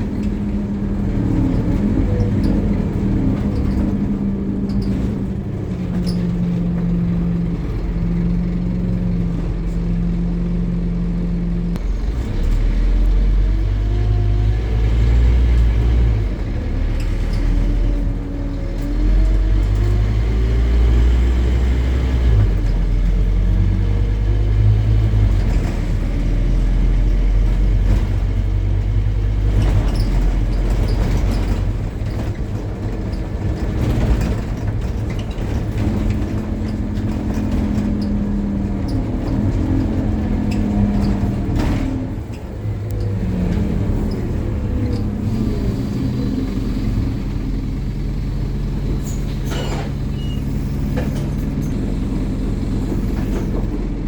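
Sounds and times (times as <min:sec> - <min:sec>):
bus diesel engine droning: 0:00.0 - 0:54.0
drivetrain whine: 0:22.2 - 0:54.0.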